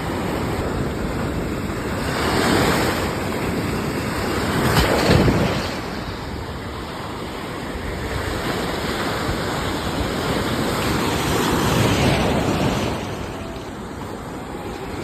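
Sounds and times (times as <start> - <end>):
sea waves washing in: 0.0 - 15.0.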